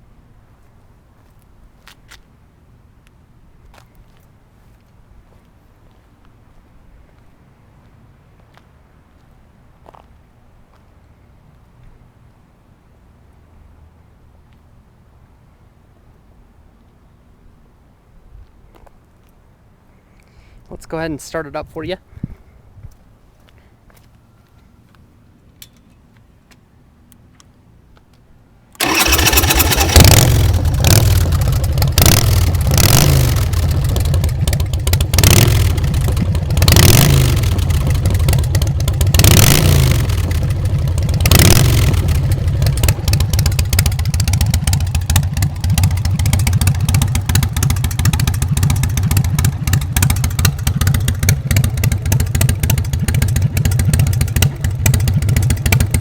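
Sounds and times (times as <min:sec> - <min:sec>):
motorcycle engine revving and idling: 0:28.8 - 0:56.0.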